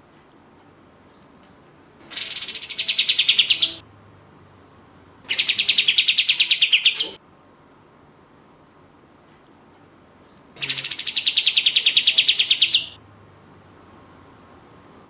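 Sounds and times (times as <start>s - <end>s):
bird trilling rapid high notes: 2.1s - 3.8s, 10.6s - 13.0s.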